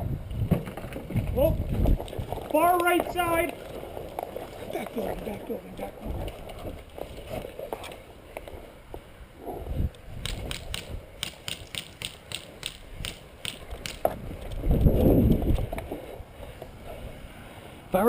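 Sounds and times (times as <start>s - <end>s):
sharp mechanical clicks: 10.2s - 14.6s.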